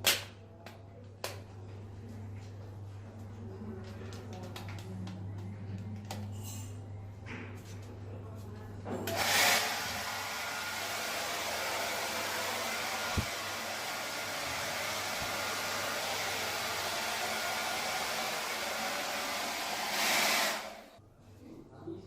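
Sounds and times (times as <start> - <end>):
blow dryer running: 9.1 - 21.0.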